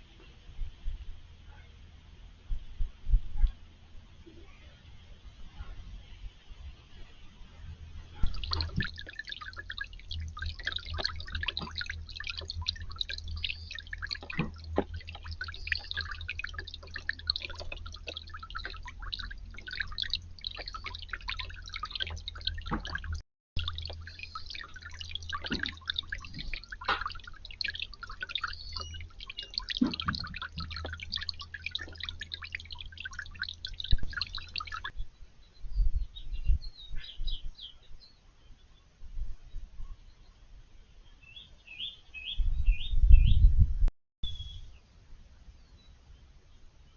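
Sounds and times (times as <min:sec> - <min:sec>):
low steady hum: 0:00.0 - 0:35.2
water dripping into fountain: 0:08.0 - 0:35.0.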